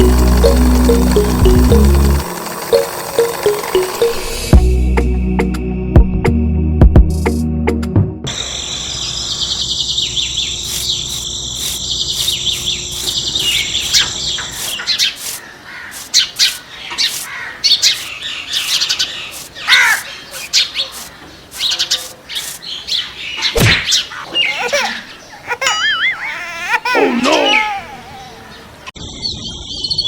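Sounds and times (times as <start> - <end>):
low hum: 0.0 - 5.8
birds chirping: 8.3 - 30.0.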